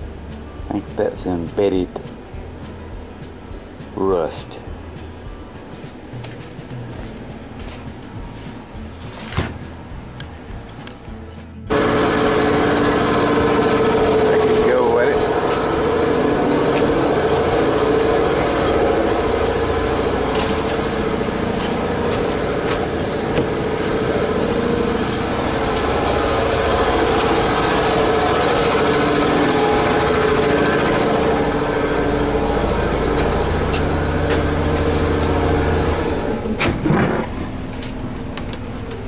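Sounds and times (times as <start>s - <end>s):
motor running: 11.7s - 39.0s.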